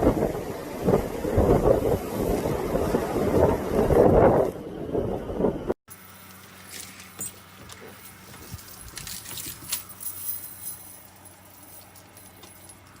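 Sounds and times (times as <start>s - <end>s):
low steady hum: 4.1s - 13.0s
metallic jingling: 5.9s - 13.0s.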